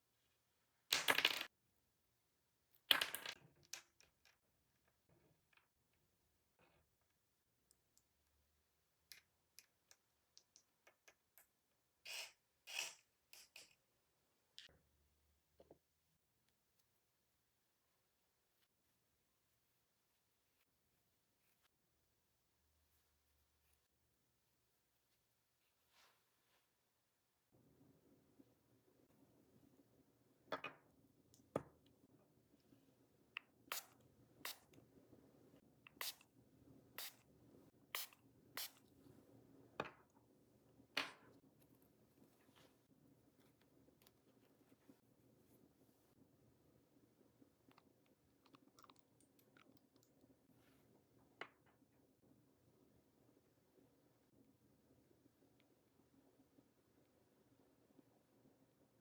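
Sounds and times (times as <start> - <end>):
faint room hum: 0.0 - 59.0
manicure tools scraping fingernails: 12.1 - 13.8.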